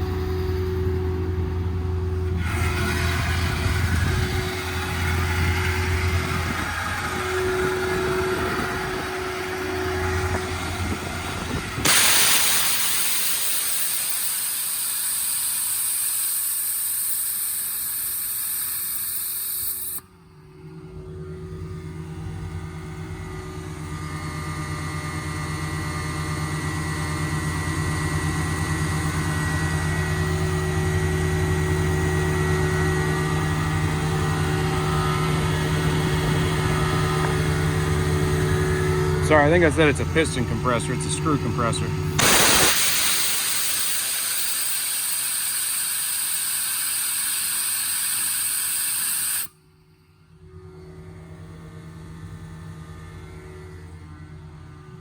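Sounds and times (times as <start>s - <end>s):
truck engine running: 0.0s - 12.6s, 24.9s - 43.2s
air compressor hum: 0.0s - 20.9s, 28.4s - 49.6s
compressed air hissing: 11.8s - 20.0s, 42.2s - 49.5s.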